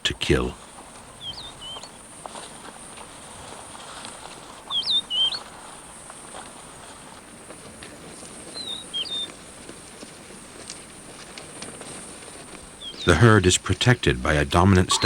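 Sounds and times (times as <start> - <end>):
faint background hiss: 0.0 - 15.0
bird whistling: 1.1 - 2.0, 4.6 - 5.5, 8.5 - 9.4, 12.7 - 15.0.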